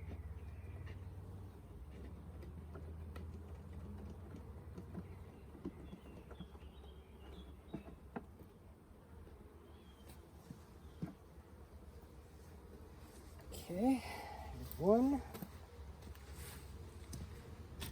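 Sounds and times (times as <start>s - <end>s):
honeybees buzzing: 5.1s - 17.9s.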